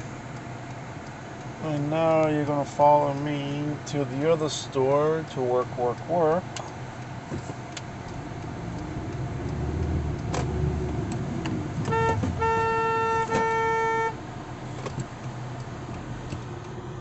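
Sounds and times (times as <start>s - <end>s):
vehicle rumble: 0.0s - 17.0s
vehicle horn honking: 11.8s - 14.2s.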